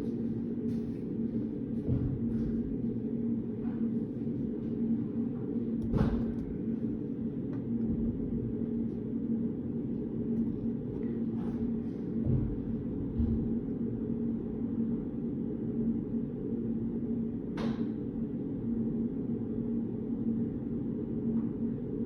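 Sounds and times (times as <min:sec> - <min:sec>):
taps and rustles of desk work: 0:00.0 - 0:06.9, 0:10.4 - 0:13.6
steady low hum: 0:00.0 - 0:22.0.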